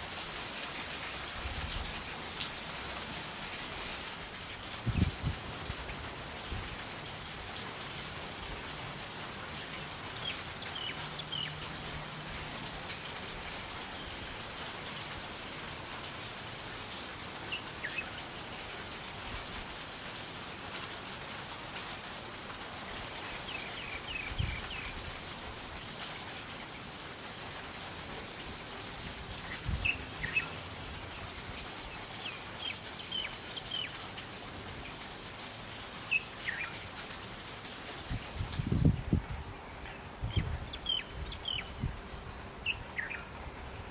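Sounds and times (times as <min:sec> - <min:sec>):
rain hissing: 0:00.0 - 0:43.9
small birds chirping: 0:09.6 - 0:11.7, 0:29.4 - 0:35.0, 0:36.0 - 0:36.9, 0:39.3 - 0:43.9.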